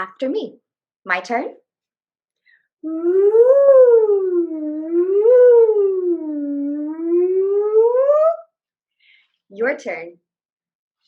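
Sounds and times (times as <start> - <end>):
woman singing vocal siren: 2.8 - 8.5.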